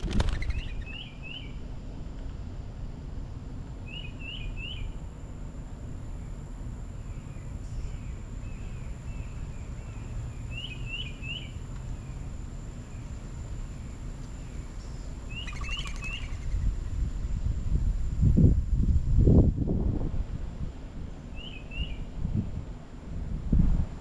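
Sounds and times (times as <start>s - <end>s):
small bird chirping: 0.0s - 1.6s, 14.4s - 17.0s.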